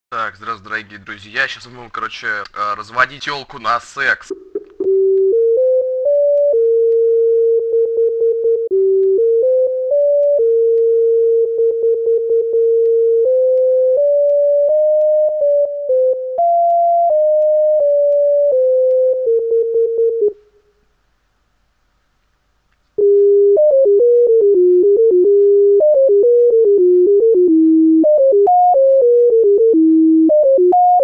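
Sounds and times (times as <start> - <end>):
electronic tone melody: 4.3 - 20.4, 23.0 - 31.0.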